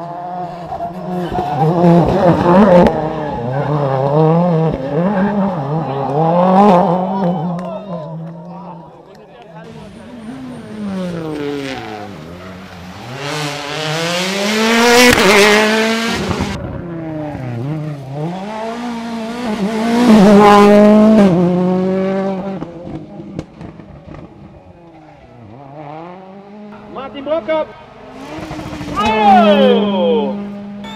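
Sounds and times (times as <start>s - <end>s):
rally car engine revving: 0.0s - 8.8s, 9.6s - 30.9s.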